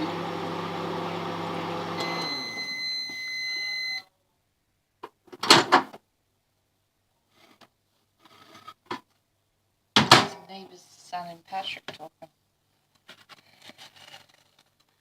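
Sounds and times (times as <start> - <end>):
microwave oven humming: 0.0 - 4.0
long microwave beep: 1.2 - 4.1.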